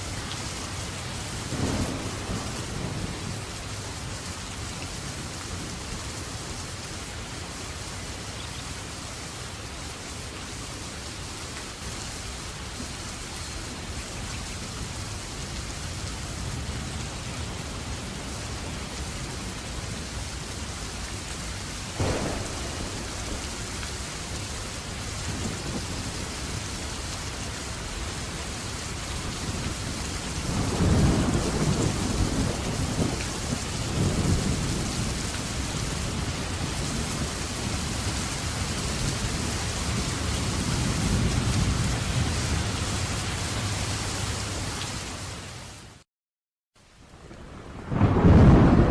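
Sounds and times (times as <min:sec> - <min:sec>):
steady rain: 0:00.0 - 0:46.1, 0:46.8 - 0:48.9
thunder rumbling: 0:01.5 - 0:03.6, 0:22.0 - 0:26.6, 0:29.2 - 0:38.2, 0:47.3 - 0:48.9
thunder crack: 0:22.0 - 0:24.0, 0:47.8 - 0:48.9.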